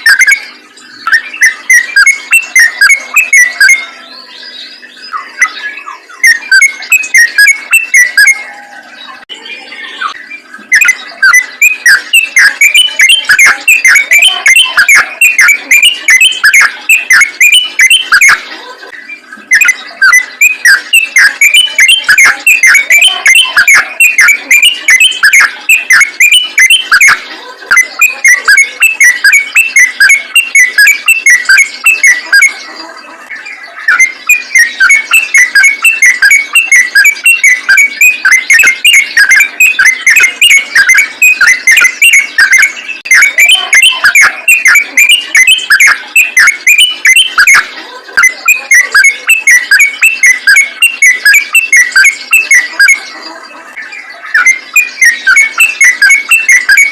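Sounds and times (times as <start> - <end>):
bulbul singing chattering notes: 0.0 - 56.9.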